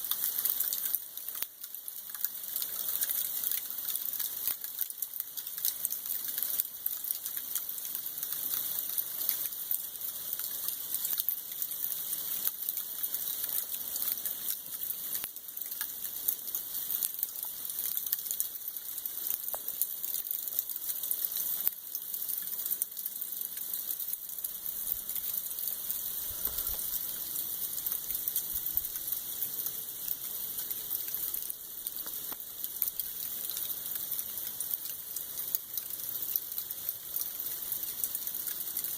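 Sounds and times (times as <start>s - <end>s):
freezing rain hissing: 0.0s - 38.9s.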